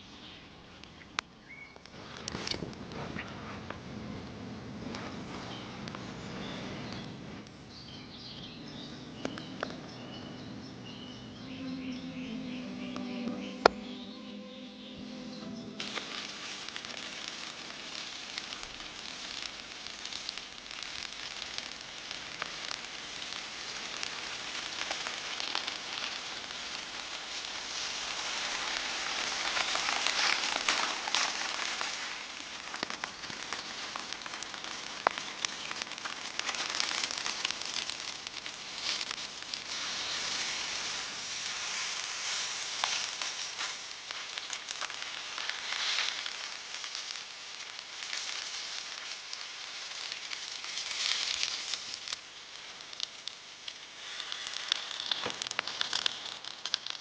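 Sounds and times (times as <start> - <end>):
burning wood crackling: 0.0 - 57.0
steak sizzling over campfire: 0.0 - 57.0.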